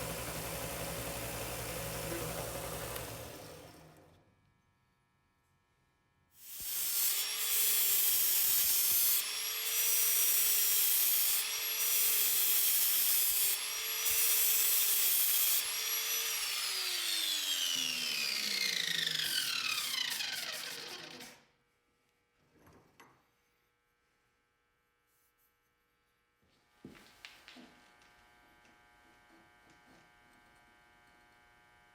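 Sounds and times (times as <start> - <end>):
electric cutter cutting steel pipe: 0.0 - 4.0, 6.4 - 21.5
cutter motor spinning down: 0.0 - 4.2, 6.4 - 21.5.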